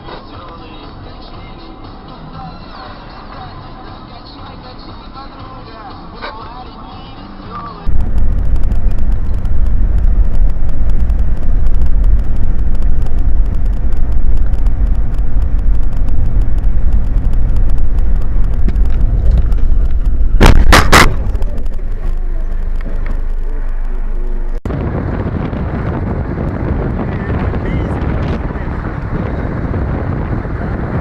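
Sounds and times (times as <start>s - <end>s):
car road and engine rumble: 0.0s - 31.0s
loud collision bangs: 20.3s - 21.6s.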